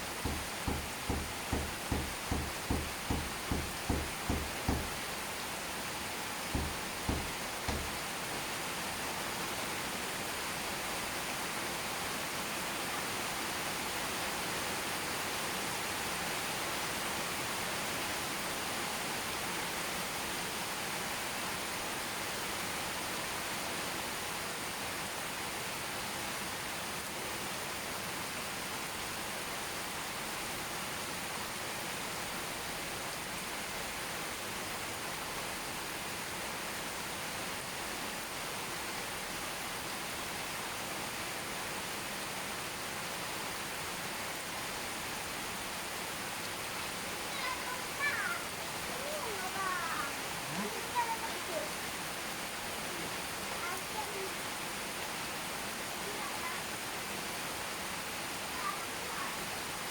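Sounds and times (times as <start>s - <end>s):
low thump: 0.0s - 5.0s, 6.6s - 8.0s
steady rain falling: 0.0s - 59.9s.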